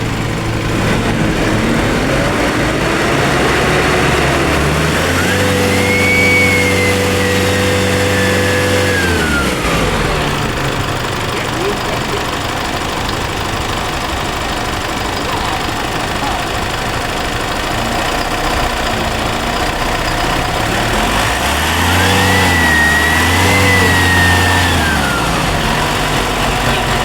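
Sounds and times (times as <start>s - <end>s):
diesel engine idling and revving: 0.0s - 27.0s
turbo whistle: 4.8s - 9.6s, 21.1s - 25.5s.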